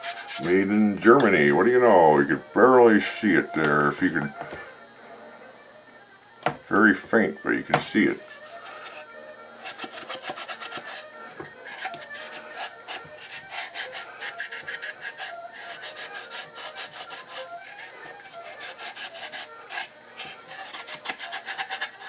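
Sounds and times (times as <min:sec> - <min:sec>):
scrubbing on wood: 0:00.0 - 0:00.5, 0:09.6 - 0:11.0, 0:11.6 - 0:22.0.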